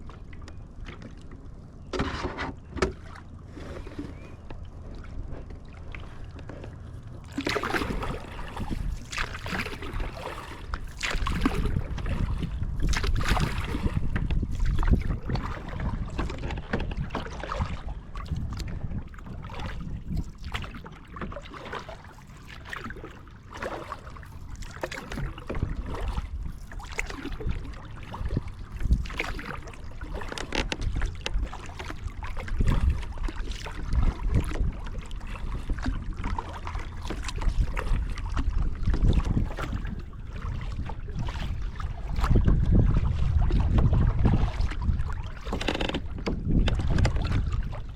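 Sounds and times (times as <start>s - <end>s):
paddle splashing in water: 0.0s - 47.9s
wind on microphone: 7.6s - 20.8s, 25.1s - 47.9s.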